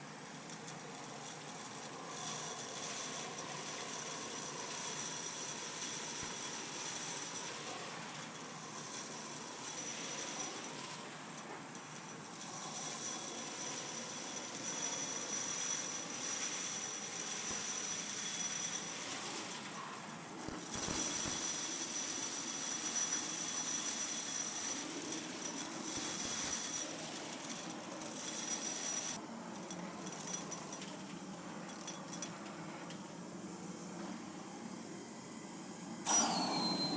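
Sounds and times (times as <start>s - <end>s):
vacuum cleaner air rush: 20.7s - 21.5s, 34.6s - 36.9s
high whine: 36.1s - 36.9s.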